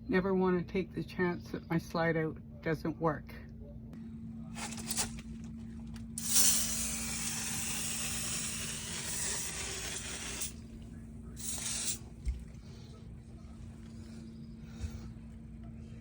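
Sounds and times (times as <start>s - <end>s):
aerosol spray can hissing: 4.6s - 5.2s, 6.2s - 10.6s, 11.4s - 12.1s.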